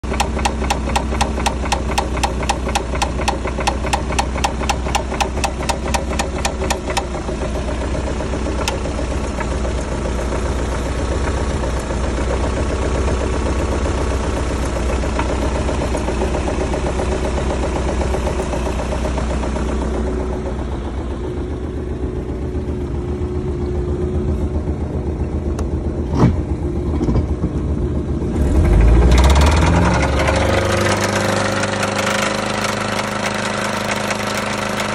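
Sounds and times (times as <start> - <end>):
boat engine running with knock: 0.1 - 7.1.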